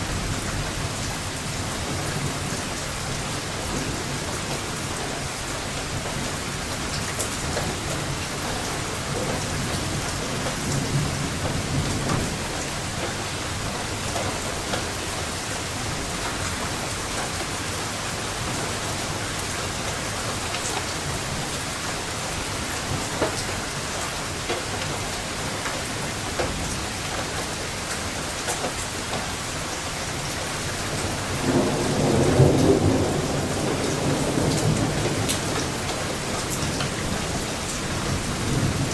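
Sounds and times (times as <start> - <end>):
steady rain falling: 0.0 - 38.9
thunder rumbling: 30.9 - 38.9.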